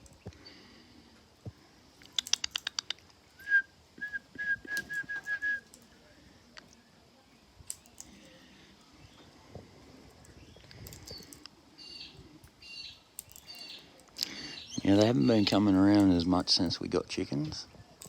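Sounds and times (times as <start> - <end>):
sharp clicks: 2.0 - 3.2
short whistled notes: 3.4 - 5.7.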